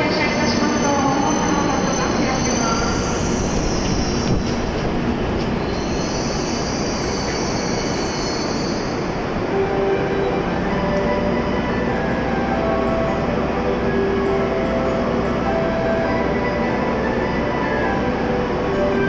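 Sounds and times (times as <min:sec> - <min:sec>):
train wheels rumbling: 0:00.0 - 0:19.0
high brake squeal: 0:00.7 - 0:04.2, 0:05.6 - 0:09.2.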